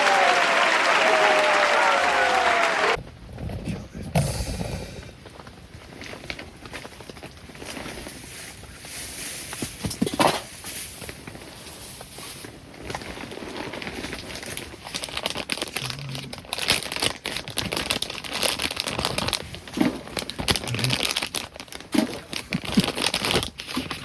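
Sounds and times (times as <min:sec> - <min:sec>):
plastic wrapper crinkling: 0:12.8 - 0:24.0.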